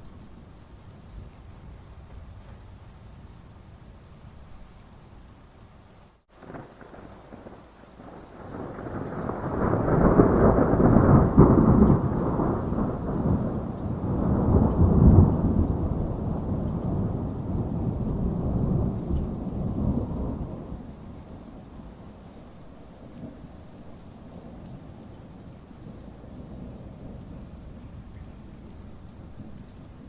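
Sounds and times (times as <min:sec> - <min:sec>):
steady rain: 0:00.0 - 0:30.0
rolling thunder: 0:06.4 - 0:22.2.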